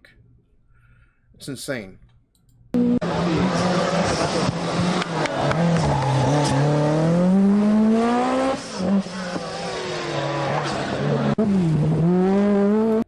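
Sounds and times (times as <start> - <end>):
rally car engine revving: 2.8 - 13.0.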